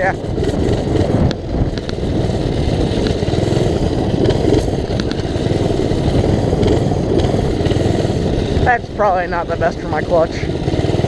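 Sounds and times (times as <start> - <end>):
minibike engine running: 0.0 - 11.0.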